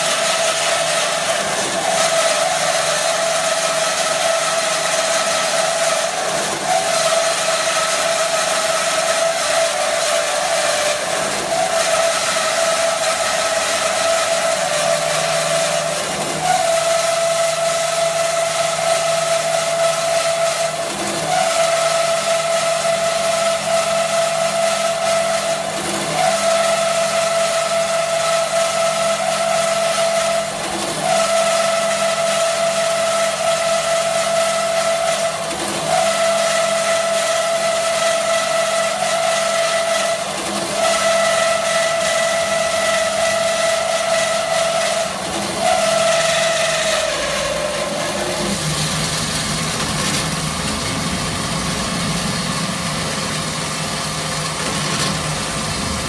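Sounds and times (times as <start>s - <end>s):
band saw whining: 0.0s - 56.0s
machine low hum: 45.2s - 56.0s.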